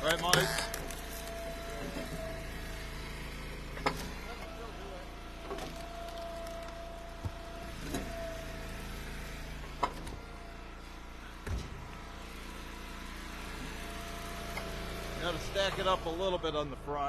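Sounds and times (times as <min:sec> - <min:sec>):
hydraulic whine: 0:00.0 - 0:17.0
wood splitter engine running: 0:00.0 - 0:17.0.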